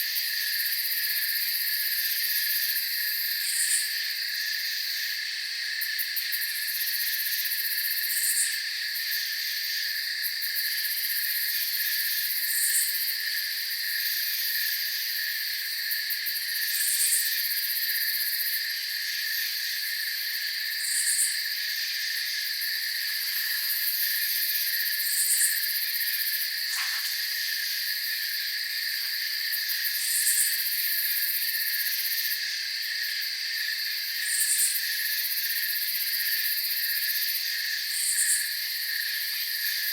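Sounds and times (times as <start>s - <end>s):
crickets chirring: 0.1s - 39.9s
short high insect call: 20.8s - 21.5s, 23.2s - 31.8s, 37.8s - 38.6s.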